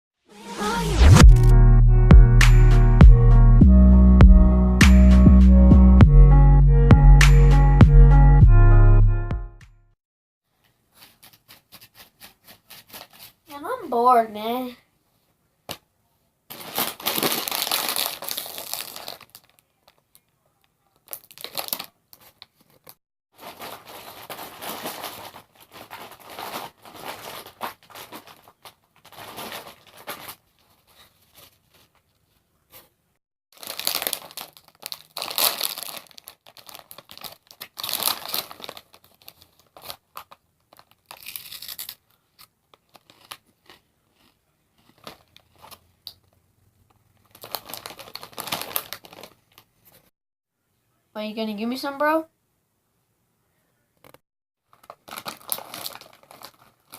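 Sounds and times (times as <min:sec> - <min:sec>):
plastic snack bag crinkling: 0:16.5 - 0:32.1, 0:33.5 - 0:50.1, 0:54.6 - 0:56.9.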